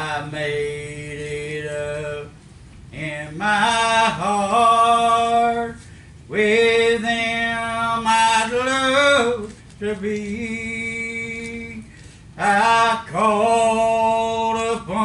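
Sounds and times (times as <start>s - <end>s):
man singing a hymn: 0.0s - 15.0s.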